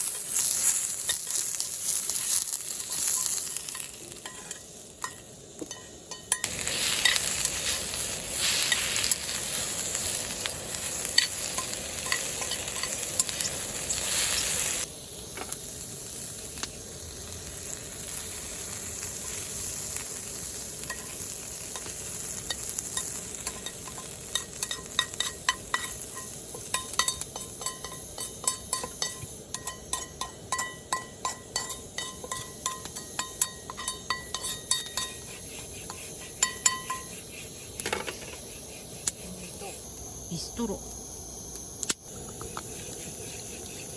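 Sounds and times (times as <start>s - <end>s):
meat sizzling in a pan: 0.0s - 43.9s
metal utensil clinking against pan: 3.0s - 7.3s, 22.5s - 35.3s, 36.4s - 37.1s.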